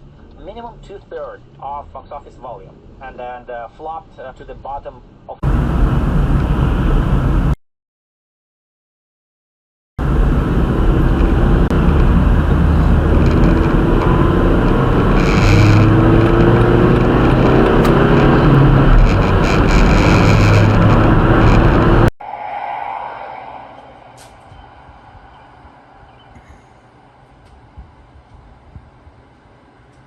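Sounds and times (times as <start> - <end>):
road noise: 0.0 - 7.6, 10.0 - 29.9
vehicle engine accelerating: 10.0 - 22.1.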